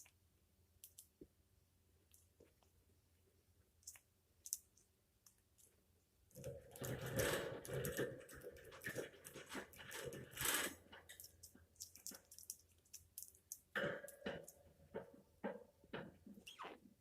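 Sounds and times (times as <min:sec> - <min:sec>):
crackly rustling and chewing: 0:03.8 - 0:15.2.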